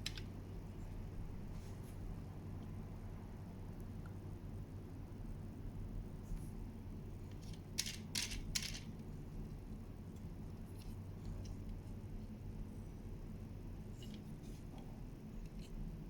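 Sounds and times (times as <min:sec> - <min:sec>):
metal toy parts clicking: 0:00.0 - 0:00.3, 0:07.3 - 0:08.9
steady low hum: 0:00.0 - 0:16.0.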